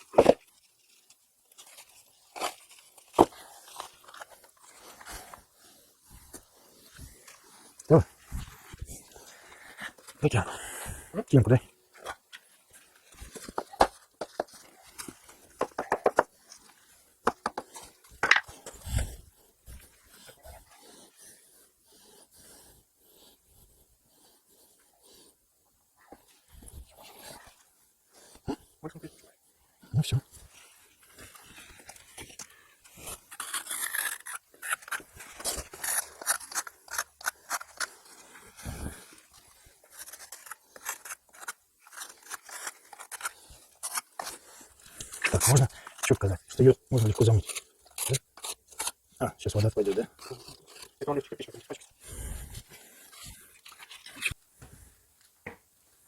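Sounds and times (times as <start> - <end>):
bricks and tools tapping: 15.6 - 16.4, 17.2 - 18.5
scraping and scratching strokes: 30.4 - 54.4.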